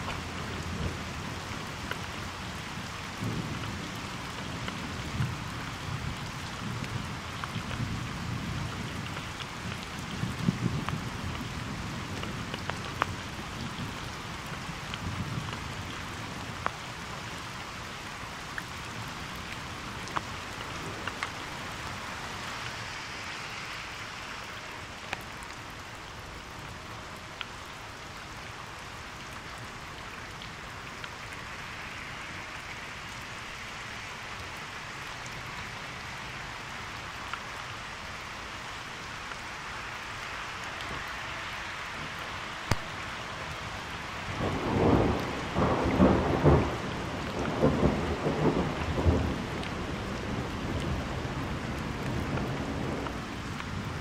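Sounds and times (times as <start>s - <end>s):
sharp raindrop ticks: 0.0s - 23.7s, 24.4s - 41.2s, 42.0s - 54.0s
steady rain falling: 0.0s - 54.0s
low thunder rumble: 44.4s - 54.0s.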